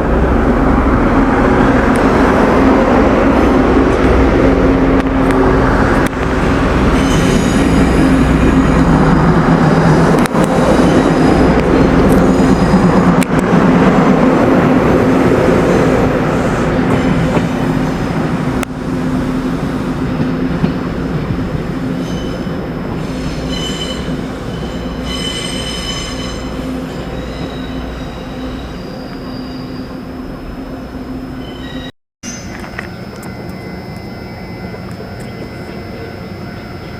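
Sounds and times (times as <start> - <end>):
train wheels rumbling: 0.0 - 30.8
high wheel squeals: 6.9 - 8.9, 22.0 - 30.1, 31.4 - 36.9.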